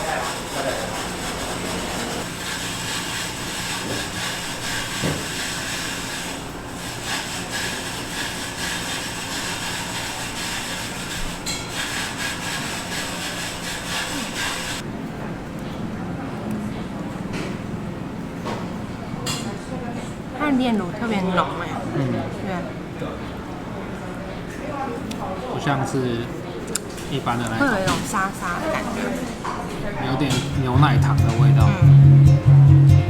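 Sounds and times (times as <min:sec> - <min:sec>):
ice machine grinding ice: 0:00.0 - 0:14.8.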